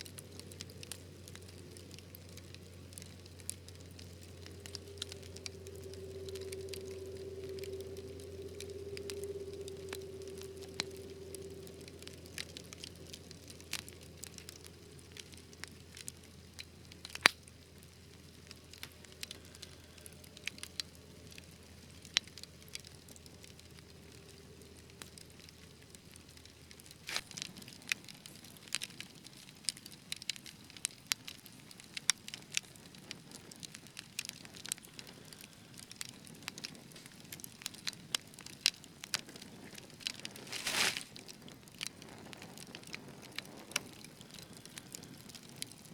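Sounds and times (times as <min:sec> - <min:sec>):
soft hiss: 0:00.0 - 0:27.6, 0:39.1 - 0:45.2
wood fire crackling: 0:00.0 - 0:45.9.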